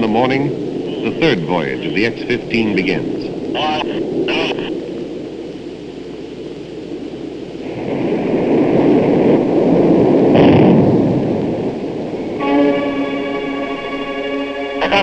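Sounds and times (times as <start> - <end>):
aircraft engine roar: 0.0 - 4.8, 10.6 - 15.0.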